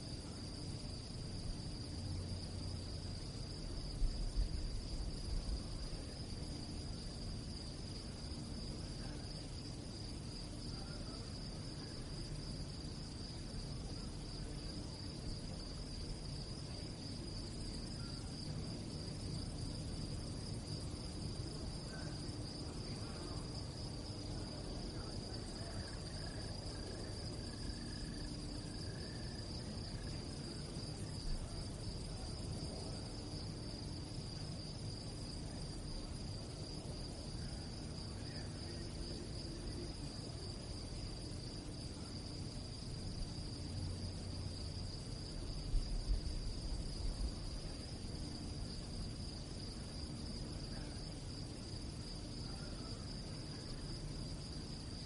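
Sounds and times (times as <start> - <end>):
crickets chirping: 0.0 - 55.0
low background rumble: 0.0 - 55.0.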